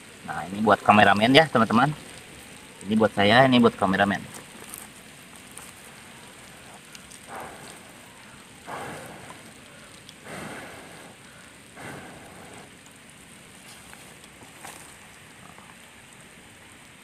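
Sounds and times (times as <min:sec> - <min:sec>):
rain pattering: 0:00.0 - 0:17.0
short swishing noises: 0:08.7 - 0:09.6.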